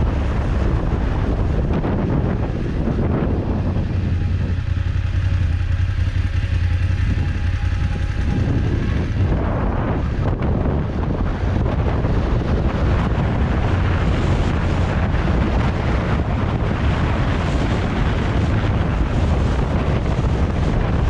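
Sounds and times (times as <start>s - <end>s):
motorcycle engine and road noise: 0.0s - 21.0s
wind buffeting microphone: 0.0s - 21.0s.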